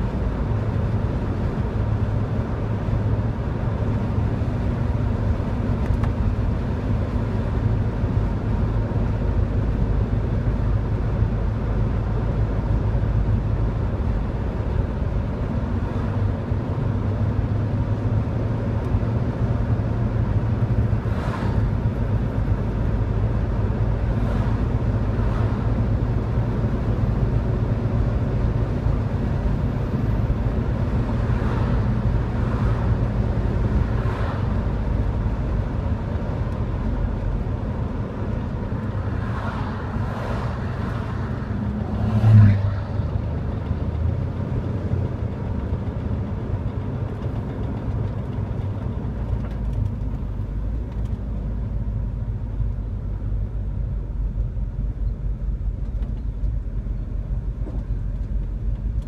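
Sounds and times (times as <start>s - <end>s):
car engine and road rumble: 0.0s - 59.0s
oncoming cars whooshing past: 39.0s - 43.5s.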